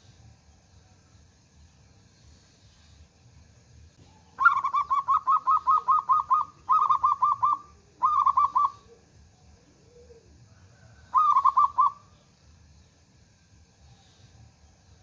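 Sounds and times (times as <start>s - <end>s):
dove cooing: 4.1s - 12.1s.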